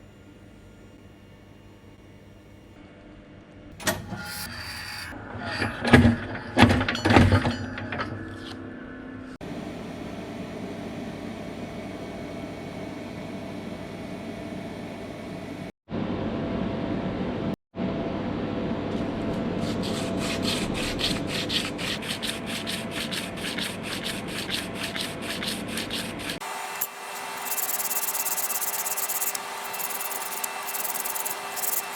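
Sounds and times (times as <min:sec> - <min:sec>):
hand tool scraping metal: 0:20.2 - 0:31.9.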